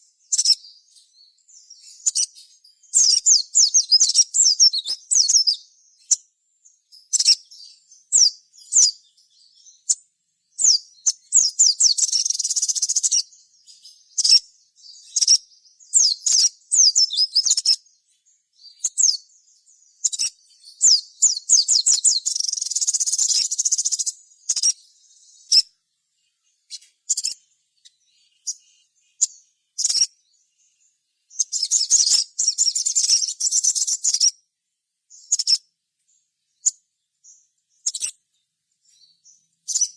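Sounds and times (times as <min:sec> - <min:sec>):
bird chattering trills: 0:10.6 - 0:13.3, 0:20.0 - 0:25.6, 0:26.7 - 0:27.4, 0:28.2 - 0:30.2, 0:31.3 - 0:34.3.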